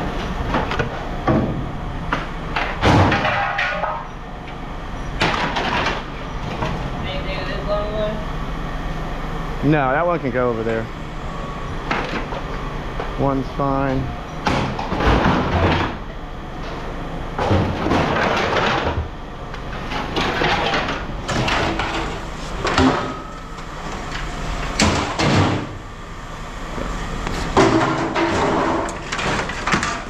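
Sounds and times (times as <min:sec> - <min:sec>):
scrap metal clanking and scraping: 0:00.0 - 0:04.2, 0:16.6 - 0:25.7, 0:27.3 - 0:30.0.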